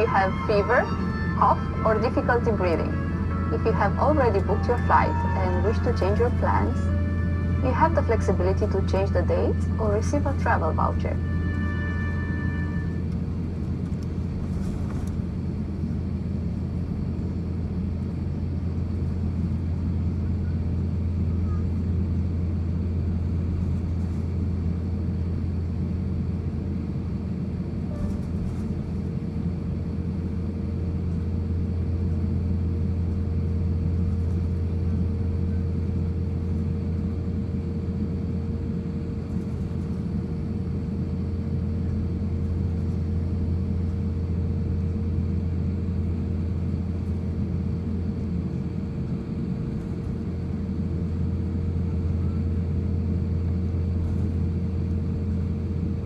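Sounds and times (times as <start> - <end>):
steady hum: 0.0 - 20.0
aircraft cabin rumble: 0.0 - 56.0.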